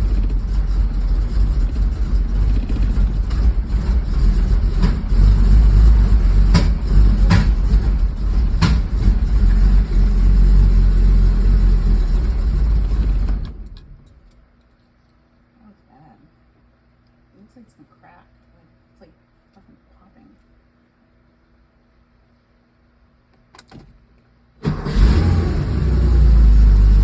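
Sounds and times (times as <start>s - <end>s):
engine backfire pops: 0.0s - 9.8s
car engine running roughly: 0.0s - 13.7s, 24.7s - 27.0s.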